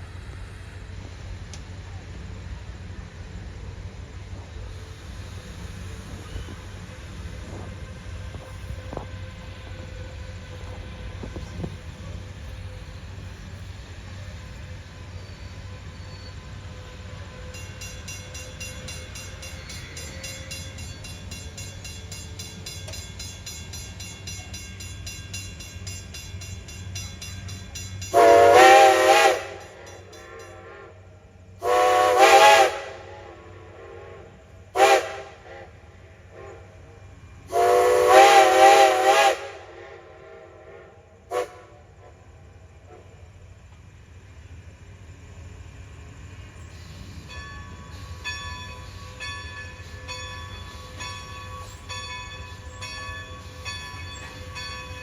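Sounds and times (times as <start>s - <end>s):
low train rumble: 0.0s - 55.0s
steam locomotive chime whistle: 14.0s - 42.2s, 46.7s - 55.0s.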